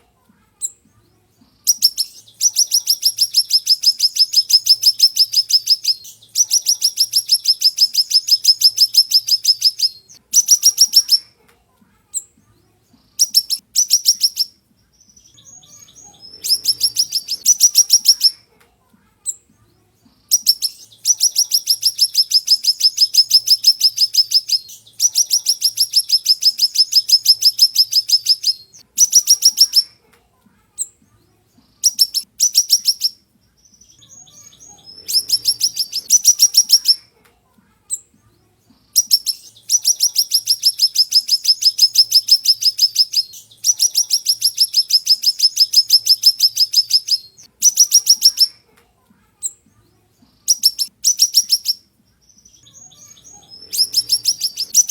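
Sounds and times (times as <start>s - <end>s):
songbird singing rapid trills: 0.6s - 11.3s, 13.1s - 18.4s, 19.2s - 29.9s, 31.8s - 37.0s, 37.9s - 48.6s, 50.4s - 54.9s.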